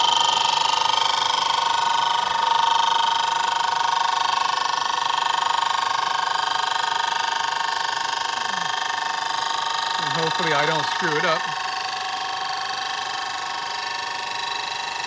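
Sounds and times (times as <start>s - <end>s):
milling machine cutting wood whine: 0.0s - 15.0s.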